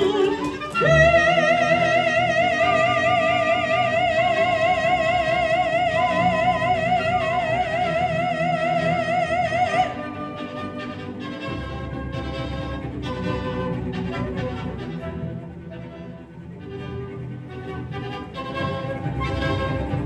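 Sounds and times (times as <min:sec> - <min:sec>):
operatic soprano holding high note: 0:00.0 - 0:10.6
instrumental accompaniment: 0:00.0 - 0:20.0.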